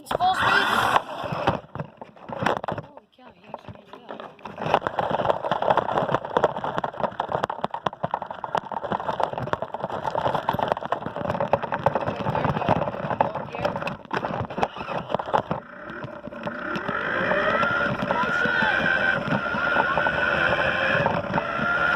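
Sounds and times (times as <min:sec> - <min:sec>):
toy car rattling over concrete: 0:00.0 - 0:21.9
electric motor whine: 0:00.2 - 0:01.7, 0:09.3 - 0:21.9.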